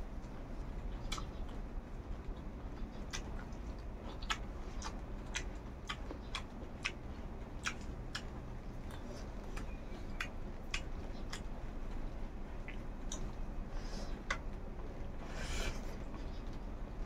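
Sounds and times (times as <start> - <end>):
low steady hum: 0.0 - 17.0
wet mouth clicks chewing: 2.3 - 11.5, 12.6 - 13.3.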